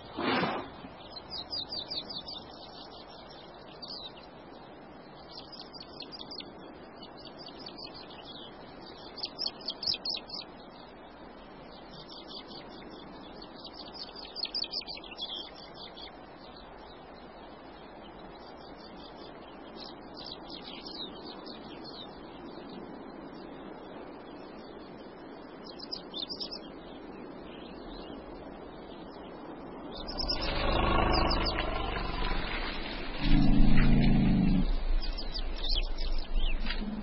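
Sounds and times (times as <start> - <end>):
outdoor hiss: 0.0 - 1.2
small birds trilling: 0.0 - 37.0
lower-pitched bird call: 30.0 - 37.0.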